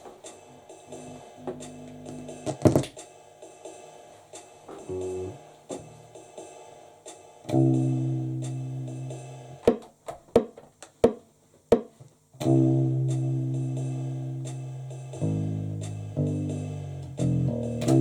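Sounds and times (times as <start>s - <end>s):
guitar chords ringing: 0.9s - 2.5s, 4.8s - 6.1s, 7.5s - 9.6s, 12.4s - 18.0s.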